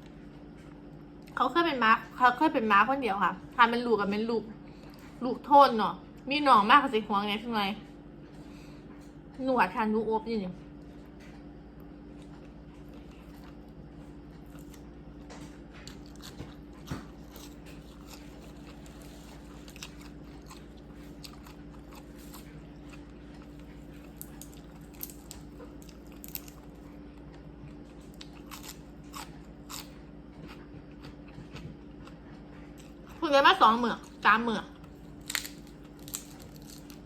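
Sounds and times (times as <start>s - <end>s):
low steady hum: 0.0s - 37.0s
person chewing crunchy food: 12.0s - 37.0s.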